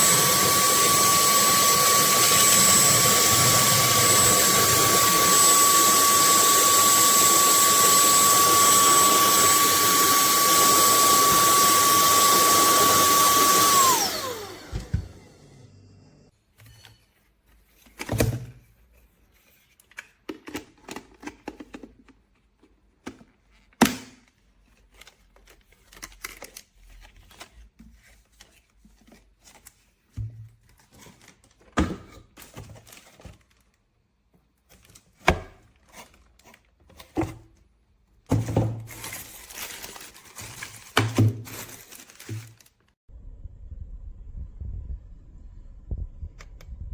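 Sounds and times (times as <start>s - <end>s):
plastic parts knocking and clicking: 19.9s - 24.3s
rustling: 38.8s - 43.0s.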